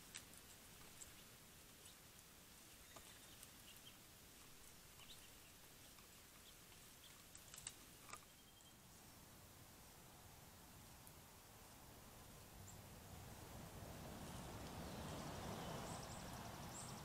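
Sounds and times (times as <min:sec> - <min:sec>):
small clicks from birds: 0:00.0 - 0:08.8, 0:10.9 - 0:12.8, 0:14.2 - 0:17.0
soft bird chirps: 0:02.7 - 0:08.9, 0:14.2 - 0:17.0.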